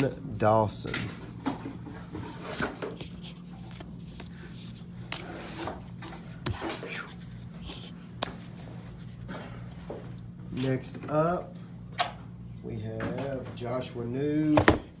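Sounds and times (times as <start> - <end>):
steady low hum: 0.0 - 15.0
cards rubbing and scraping: 2.0 - 9.3.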